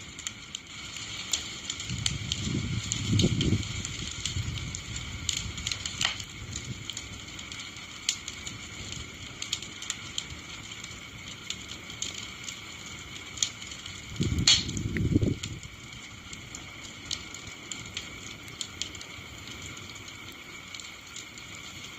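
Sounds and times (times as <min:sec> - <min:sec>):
wood bonfire crackling: 0:00.0 - 0:21.9
sharp pops: 0:14.4 - 0:15.1.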